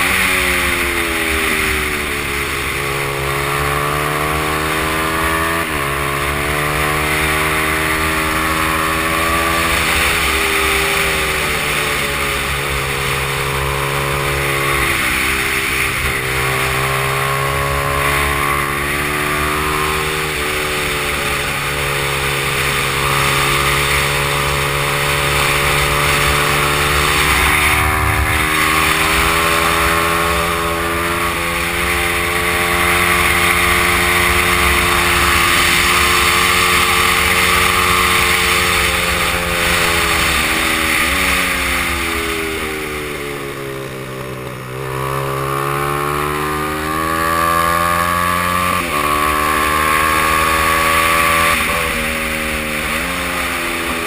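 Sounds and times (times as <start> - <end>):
motorcycle engine revving high: 0.0 - 54.0
wind rush: 25.2 - 31.8.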